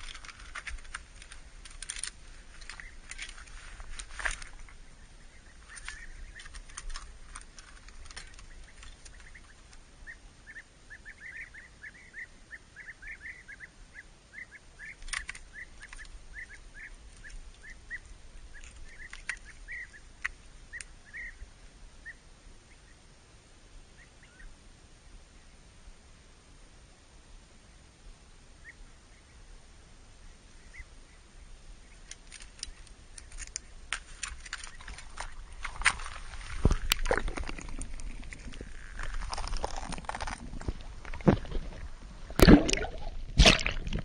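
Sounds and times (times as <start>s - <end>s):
small bird chirping: 2.5s - 3.7s, 4.3s - 21.4s.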